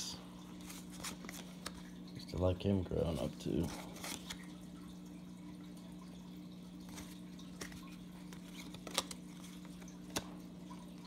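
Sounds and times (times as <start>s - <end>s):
low electrical hum: 0.0s - 11.0s
cards being flipped clicking: 6.9s - 10.3s.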